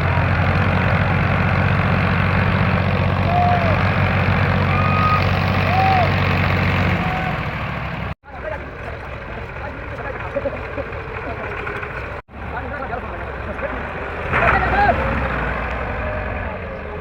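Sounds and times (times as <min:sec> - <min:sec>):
tractor diesel engine running: 0:00.0 - 0:14.2
rising and falling calls: 0:04.6 - 0:07.6.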